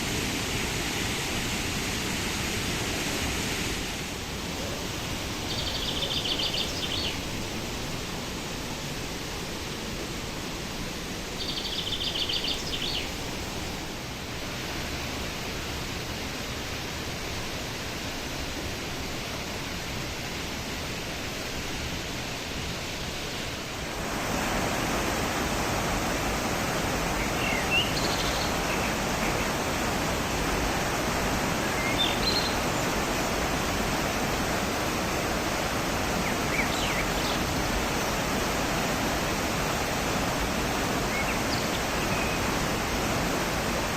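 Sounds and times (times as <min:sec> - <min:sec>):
waterfall rushing: 0:00.6 - 0:18.0, 0:21.2 - 0:43.9
high bird chirps: 0:05.5 - 0:07.8, 0:11.4 - 0:13.8.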